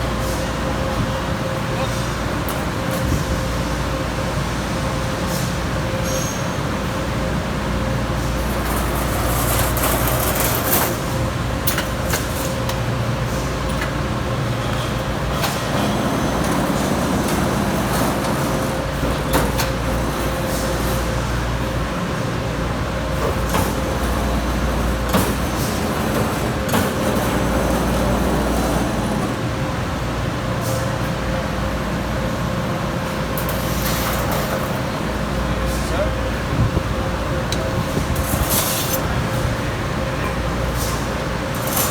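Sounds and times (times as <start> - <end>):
punch machine motor hum: 14.0 - 30.0.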